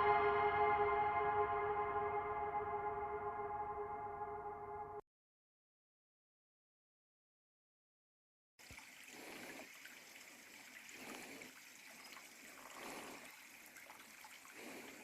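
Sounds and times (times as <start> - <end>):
creek trickling: 8.6 - 15.0.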